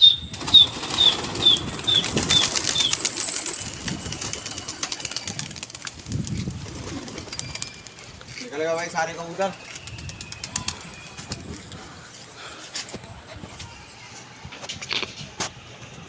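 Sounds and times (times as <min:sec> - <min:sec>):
pigeon wings flapping: 0:00.3 - 0:11.8.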